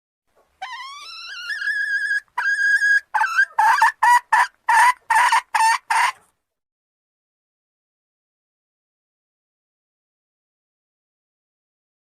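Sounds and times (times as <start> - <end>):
junglefowl hen calling: 0.6 - 6.3.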